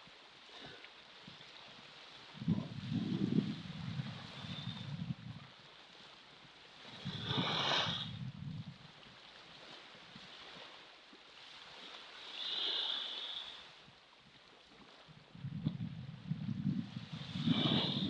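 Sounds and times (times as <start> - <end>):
wind rumble on microphone: 0.6 - 10.8, 13.8 - 18.0
ocean waves washing in: 16.4 - 18.0.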